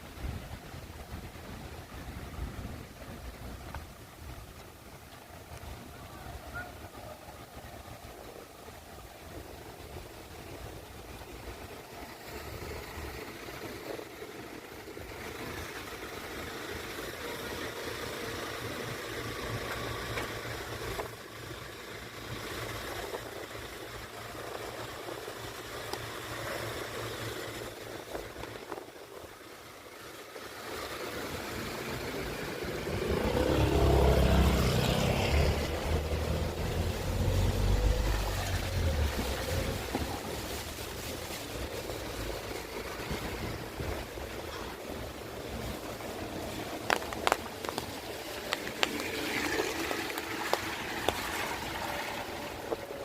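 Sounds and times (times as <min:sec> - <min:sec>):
car engines passing: 0:00.0 - 0:53.0
tyre hiss on wet road: 0:00.0 - 0:53.0
wind buffeting microphone: 0:30.9 - 0:53.0.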